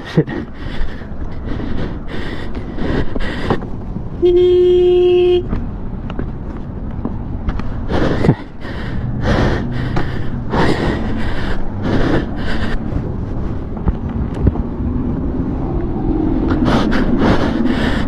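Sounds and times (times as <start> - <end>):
person breathing hard and gasping: 0.0 - 3.8, 7.6 - 13.7, 16.4 - 18.0
low engine hum: 0.0 - 18.0.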